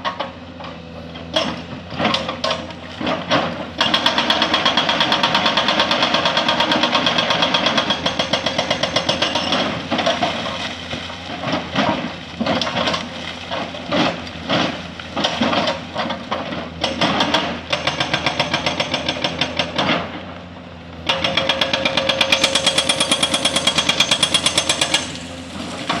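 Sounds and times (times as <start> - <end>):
diesel engine running: 0.0 - 26.0
hydraulic breaker hammering: 1.3 - 10.3, 15.2 - 20.1, 21.0 - 26.0.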